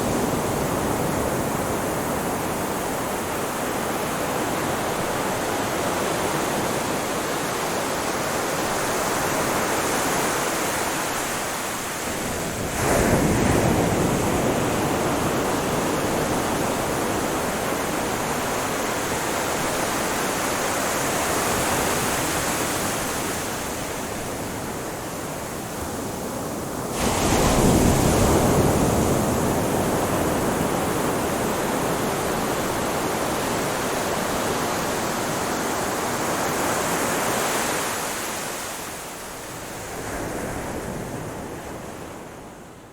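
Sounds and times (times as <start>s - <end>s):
ocean surf washing on shore: 0.0s - 42.9s
waves breaking loudly: 8.8s - 23.5s, 26.8s - 38.9s.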